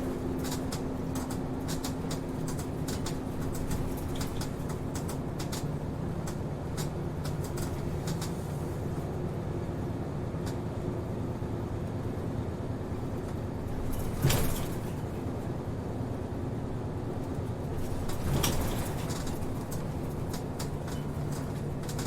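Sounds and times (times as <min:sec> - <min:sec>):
bus engine drone: 0:00.0 - 0:22.0
clicking rattles: 0:00.4 - 0:08.4, 0:13.7 - 0:15.2, 0:17.8 - 0:22.0.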